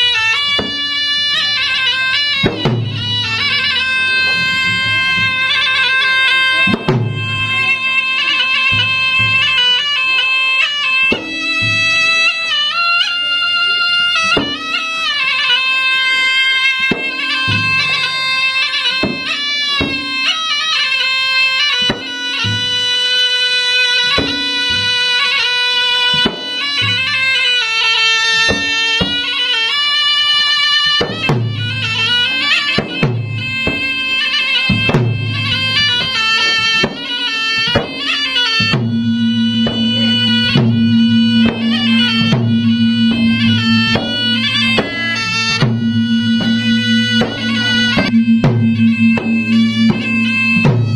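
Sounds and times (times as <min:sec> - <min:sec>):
drums beaten in running rhythm: 0:00.0 - 0:13.3, 0:14.0 - 0:50.9
shrill reed-pipe melody: 0:00.0 - 0:50.9
steady low drone: 0:38.7 - 0:50.9.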